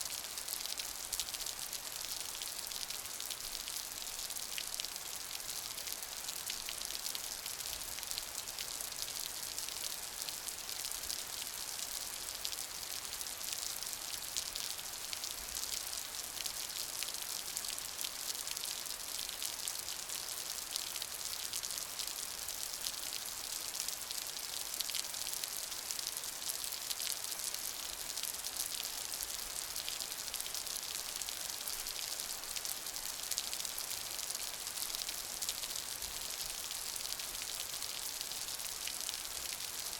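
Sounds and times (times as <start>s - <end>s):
steady rain pattering: 0.0s - 39.9s.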